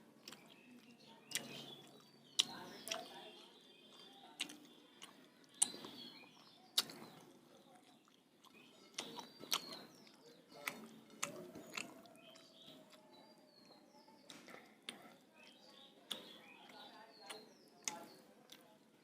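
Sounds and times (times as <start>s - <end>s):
person chewing food: 0.0s - 19.0s
wet mouth smacks and clicks: 0.2s - 3.1s, 4.4s - 6.0s, 8.1s - 13.0s.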